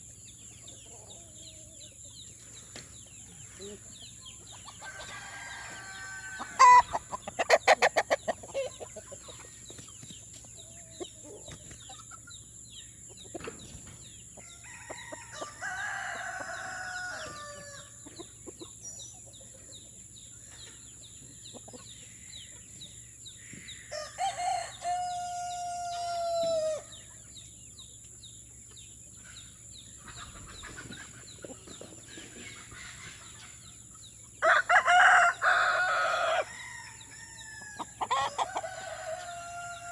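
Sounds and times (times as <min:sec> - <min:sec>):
chickens clucking: 0:00.0 - 0:39.9
roosters crowing: 0:03.8 - 0:09.4, 0:14.3 - 0:18.2, 0:23.4 - 0:27.2, 0:34.3 - 0:39.9.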